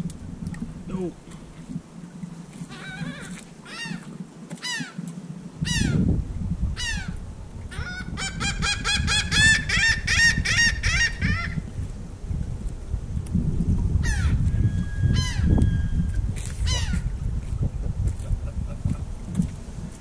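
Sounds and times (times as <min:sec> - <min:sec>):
low rumble: 0:00.0 - 0:01.9.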